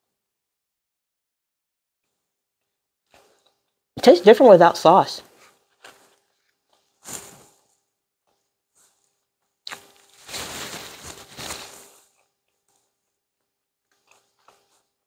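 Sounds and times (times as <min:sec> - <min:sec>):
chewing food: 0:05.3 - 0:10.3, 0:11.5 - 0:15.0
paper napkin rustling: 0:06.9 - 0:07.8, 0:09.9 - 0:12.1.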